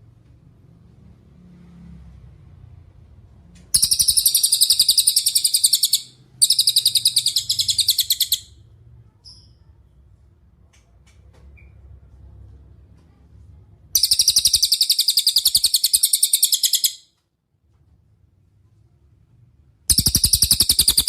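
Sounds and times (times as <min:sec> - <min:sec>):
faint low hum: 0:00.0 - 0:21.0
songbird high trilling: 0:03.8 - 0:08.5, 0:14.0 - 0:17.0, 0:19.9 - 0:21.0.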